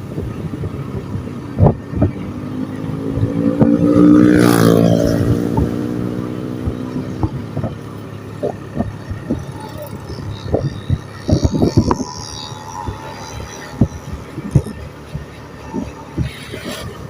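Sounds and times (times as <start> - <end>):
vehicle engine passing by: 2.4 - 7.7.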